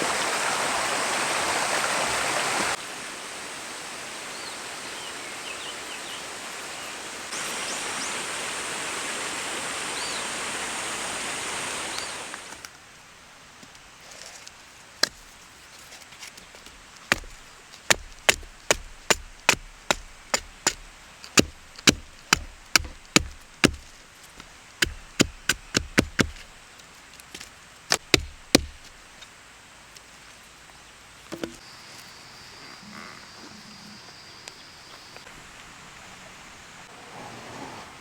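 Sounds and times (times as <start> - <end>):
wood being chopped: 15.0 - 15.3, 17.0 - 26.6, 27.2 - 29.1, 31.3 - 31.6.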